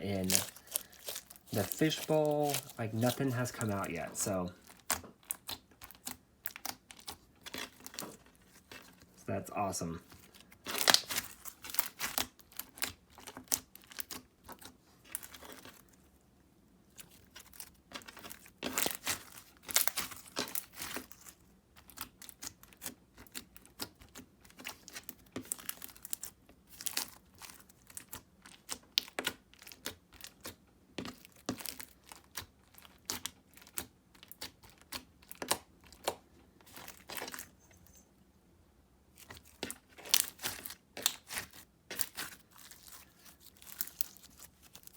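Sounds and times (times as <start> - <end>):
slime squished by hand: 0.0 - 8.8, 10.3 - 15.9, 39.2 - 44.9.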